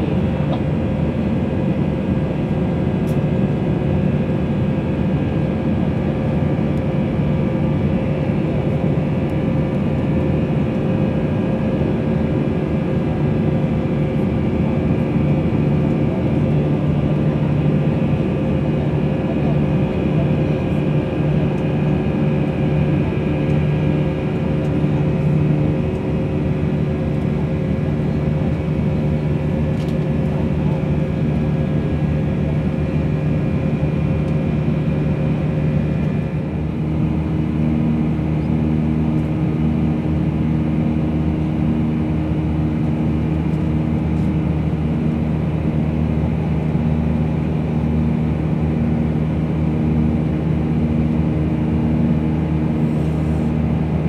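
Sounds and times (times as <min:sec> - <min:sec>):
aircraft cabin engine drone: 0:00.0 - 0:54.0.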